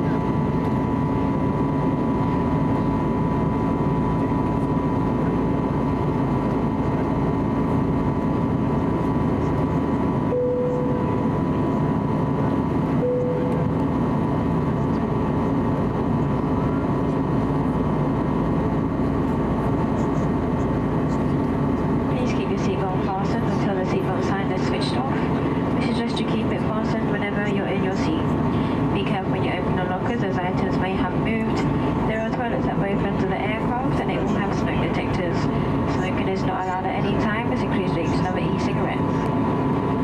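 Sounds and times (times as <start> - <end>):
airplane cabin noise: 0.0 - 40.0
short clear tones: 13.0 - 13.7.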